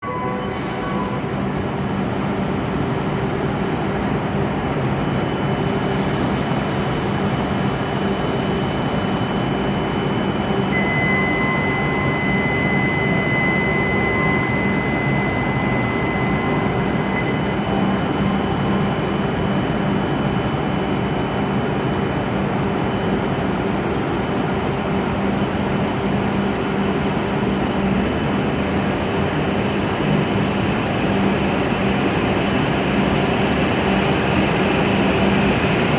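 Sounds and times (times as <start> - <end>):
steady high beep: 9.6 - 18.6.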